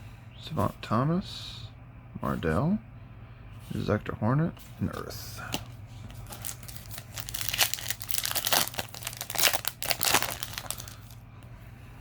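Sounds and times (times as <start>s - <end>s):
foil wrapper crinkling: 6.1s - 11.2s.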